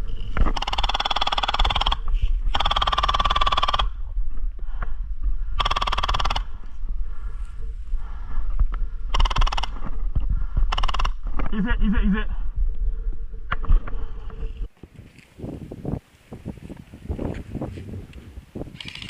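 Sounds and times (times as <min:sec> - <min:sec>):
wind rumble on microphone: 0:00.0 - 0:19.0
airsoft gun firing bursts: 0:00.6 - 0:03.9, 0:09.2 - 0:09.8.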